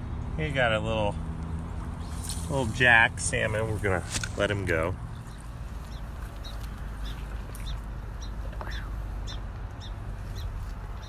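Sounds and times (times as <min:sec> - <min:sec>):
small bird chirping: 0:05.1 - 0:11.0.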